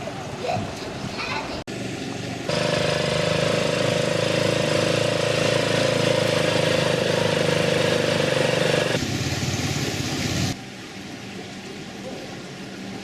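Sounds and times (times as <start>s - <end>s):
small engine running: 2.5s - 10.6s.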